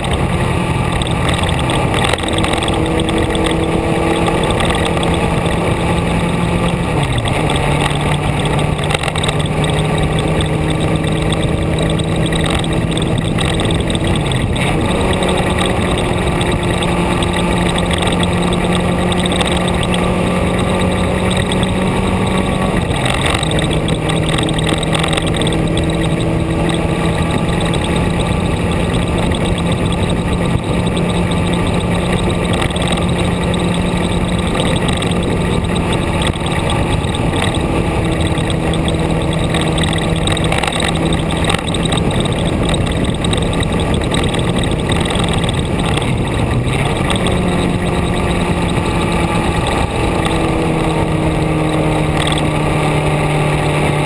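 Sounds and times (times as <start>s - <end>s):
road and wind noise: 0.0s - 54.0s
vehicle engine running: 0.0s - 54.0s.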